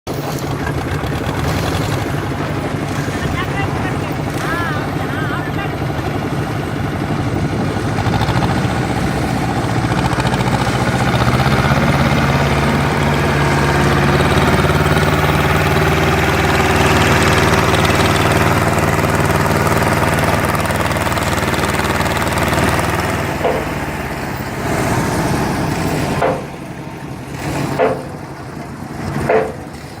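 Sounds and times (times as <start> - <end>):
tractor diesel engine running: 0.1 - 30.0
short knocks: 23.4 - 23.8, 26.2 - 26.6, 27.7 - 28.2, 29.2 - 29.7.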